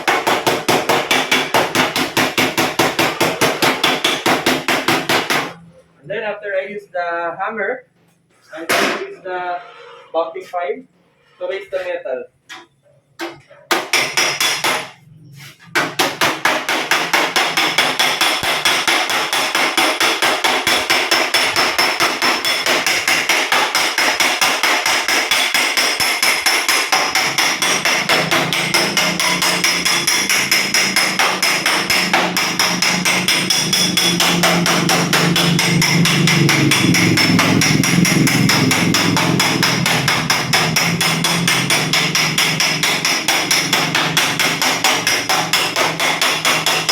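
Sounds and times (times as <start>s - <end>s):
hammer blows on steel panel: 0.0s - 5.6s, 15.6s - 46.9s.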